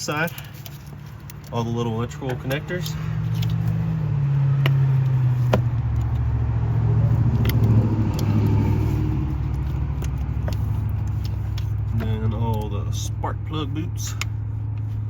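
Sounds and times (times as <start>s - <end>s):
plastic connectors clicking: 7.3s - 8.6s.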